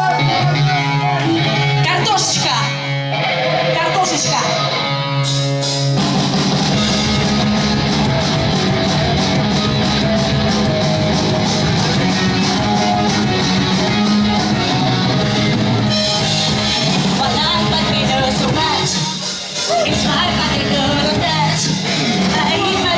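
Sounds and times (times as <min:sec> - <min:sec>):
bass guitar: 0:00.0 - 0:22.9
distorted electric guitars: 0:00.0 - 0:22.9
drum kit beating: 0:05.2 - 0:22.9.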